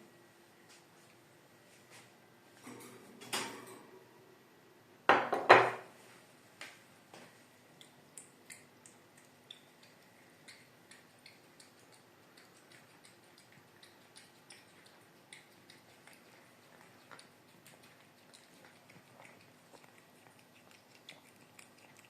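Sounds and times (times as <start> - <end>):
cat chewing and licking: 7.8 - 22.0.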